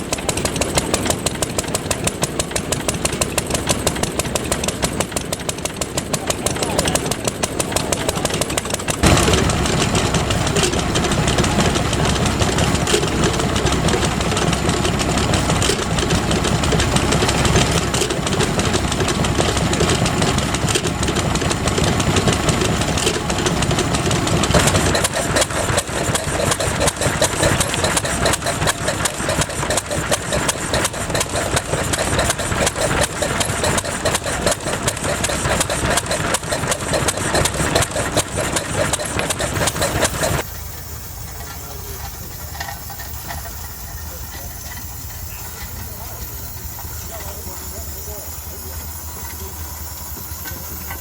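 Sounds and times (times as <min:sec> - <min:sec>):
stationary engines running: 0:00.0 - 0:51.0.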